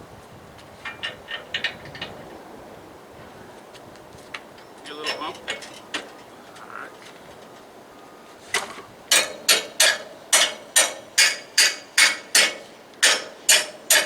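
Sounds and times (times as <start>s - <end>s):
hammer blows on metal: 8.5s - 14.0s.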